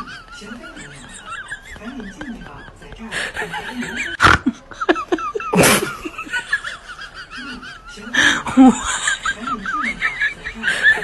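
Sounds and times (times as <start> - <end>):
giggling voice: 0.0 - 11.0
person laughing: 0.0 - 11.0.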